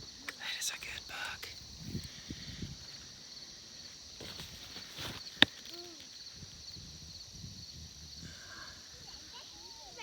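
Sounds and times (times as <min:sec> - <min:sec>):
soft rustling and shuffling: 0:03.8 - 0:06.2.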